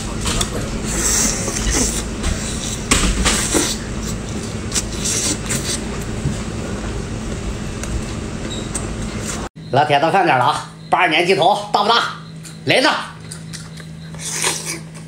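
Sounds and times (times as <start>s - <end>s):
low background hum: 0.0s - 15.0s
person chewing food: 13.2s - 15.0s.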